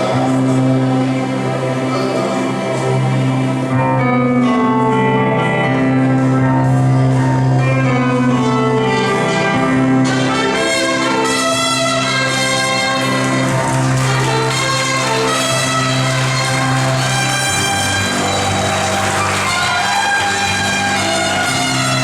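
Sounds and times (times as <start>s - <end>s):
bugle fanfare: 10.0s - 22.0s.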